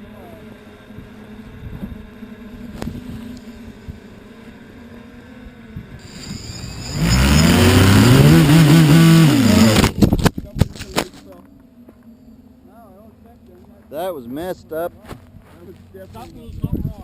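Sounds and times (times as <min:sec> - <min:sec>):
faint steady hum: 0:00.0 - 0:07.4
quadcopter motors whining: 0:00.0 - 0:10.3.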